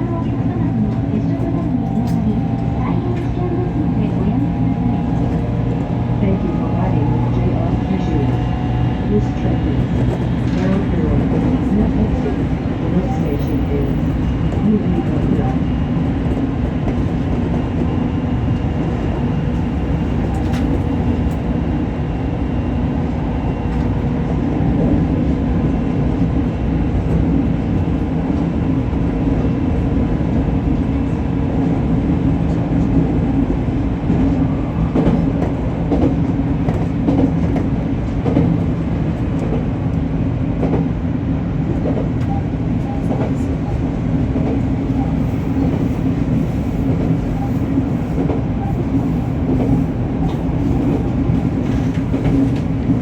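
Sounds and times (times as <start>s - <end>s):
wheels rumbling on rails: 0.0s - 53.0s
faint track clicks: 0.9s - 6.0s.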